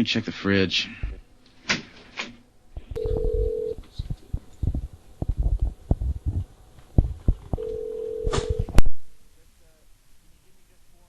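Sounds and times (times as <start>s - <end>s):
telephone line tone: 2.9s - 3.8s, 7.6s - 8.8s
low thuds and knocks: 4.3s - 7.6s.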